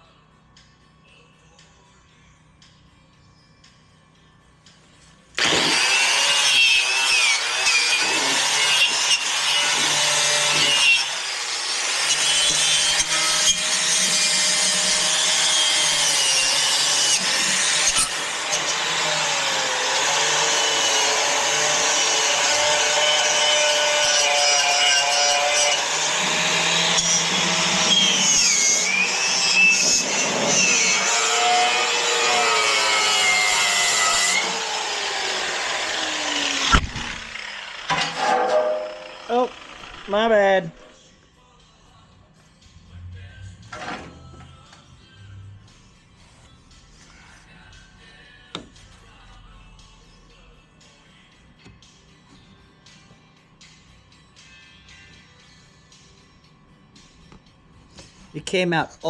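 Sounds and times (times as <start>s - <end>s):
angle grinder cutting metal: 5.4s - 40.6s.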